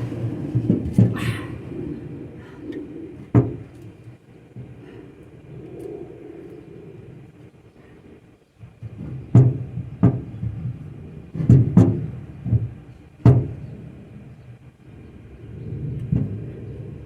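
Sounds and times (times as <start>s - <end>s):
knocks on wooden frame: 9.0s - 10.6s, 11.4s - 13.6s.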